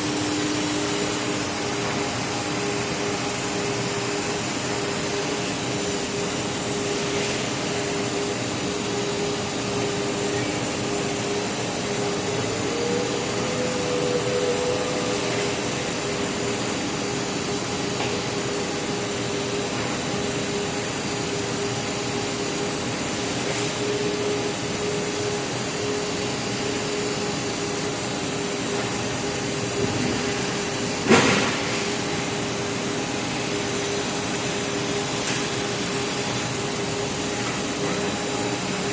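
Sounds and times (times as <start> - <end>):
extrusion machine drone: 0.0 - 38.9.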